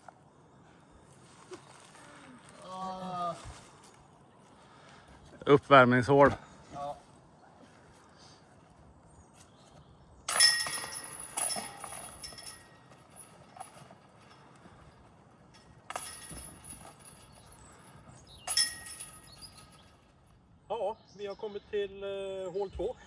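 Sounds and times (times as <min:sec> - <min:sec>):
discs hitting basket chains: 0:10.3 - 0:20.2.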